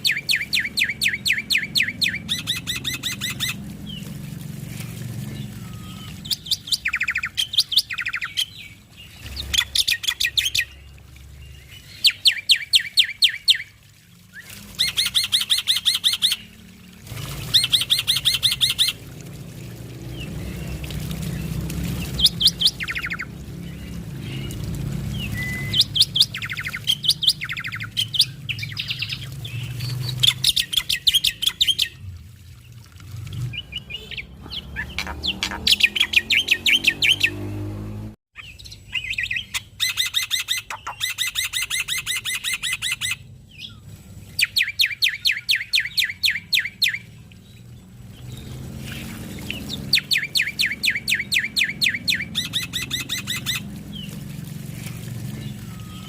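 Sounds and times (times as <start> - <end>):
bird chattering song: 0.0 - 4.0, 5.3 - 16.6, 17.4 - 19.0, 20.1 - 32.0, 33.5 - 37.4, 38.4 - 43.8, 44.4 - 47.2, 48.2 - 54.2.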